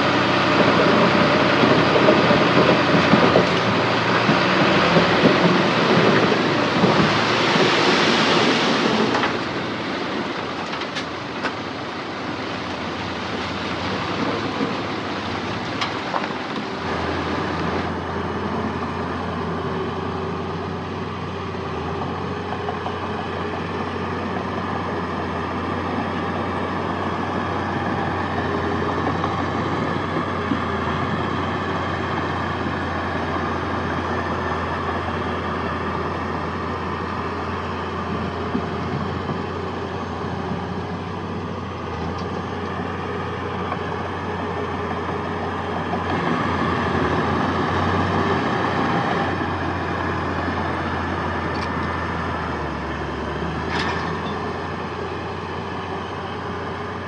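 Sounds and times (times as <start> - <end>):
loud rushing noise: 0.0 - 11.4
heavy diesel machinery running: 0.0 - 57.0.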